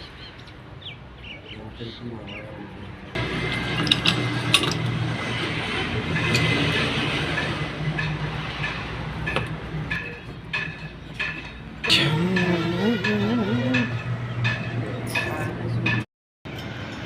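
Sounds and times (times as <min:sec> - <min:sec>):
steady mechanical hum: 0:00.0 - 0:17.0
sharp metallic ticks: 0:06.1 - 0:16.0.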